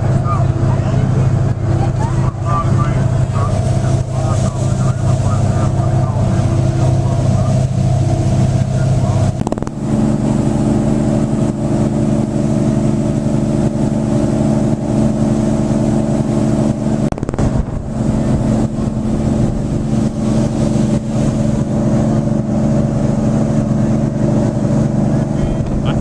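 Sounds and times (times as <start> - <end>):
boat engine droning: 0.0 - 26.0
wind rumbling on microphone: 0.0 - 26.0.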